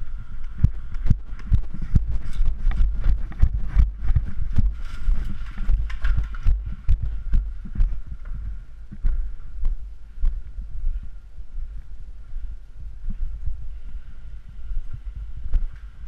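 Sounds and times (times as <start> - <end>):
low rumble against microphone: 0.0 - 16.0
footsteps and gear knocking: 0.4 - 10.4.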